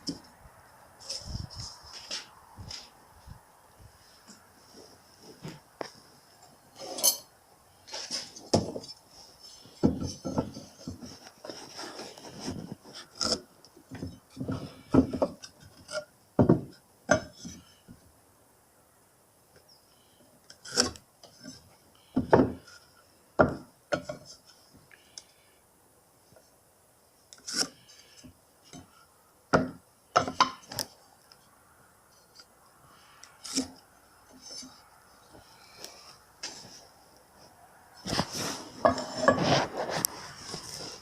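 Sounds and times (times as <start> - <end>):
tools scraping: 1.0 - 3.0, 5.2 - 7.3, 7.9 - 16.1, 27.3 - 28.9, 32.2 - 36.9, 38.0 - 41.0.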